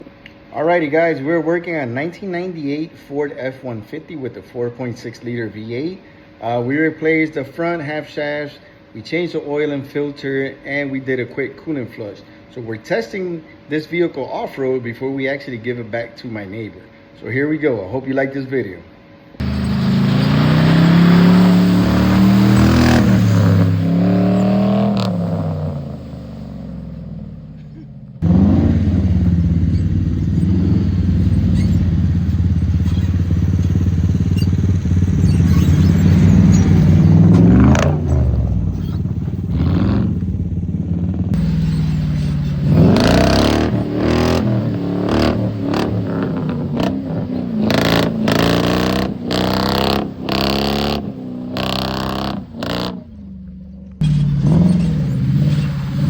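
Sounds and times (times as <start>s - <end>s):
truck engine revving: 19.4s - 56.0s.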